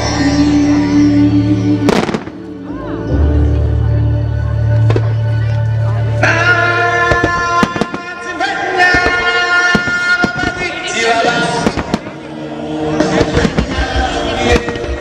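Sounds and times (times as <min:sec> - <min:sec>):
musical theatre music: 0:00.0 - 0:15.0
fireworks bursting and crackling: 0:01.9 - 0:02.4, 0:07.0 - 0:12.3, 0:12.9 - 0:15.0.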